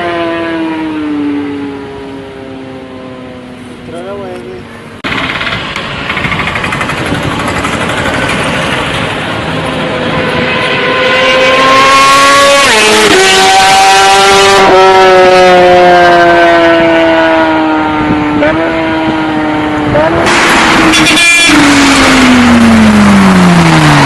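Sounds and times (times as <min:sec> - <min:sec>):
motorcycle engine at high revs: 0:05.0 - 0:24.0.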